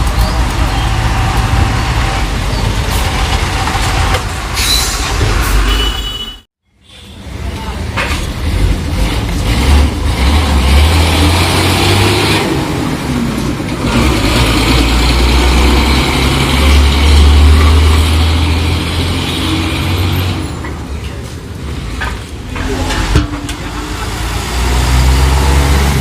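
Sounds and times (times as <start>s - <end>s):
truck engine drone: 8.2s - 26.0s.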